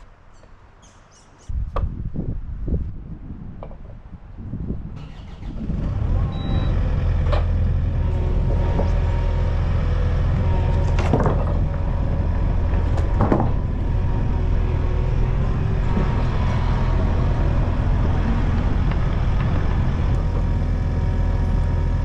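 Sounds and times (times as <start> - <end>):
sawmill power unit humming: 5.0 - 22.0.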